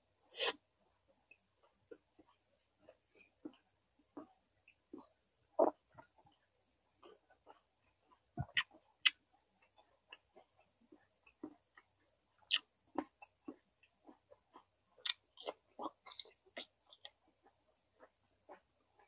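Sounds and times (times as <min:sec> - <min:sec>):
person chewing mouth clicks: 0:01.6 - 0:06.2, 0:07.0 - 0:18.7.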